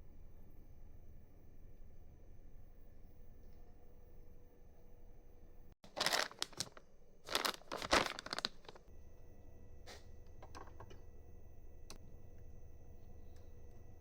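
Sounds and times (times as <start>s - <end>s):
crinkling and rustling: 5.8s - 8.8s.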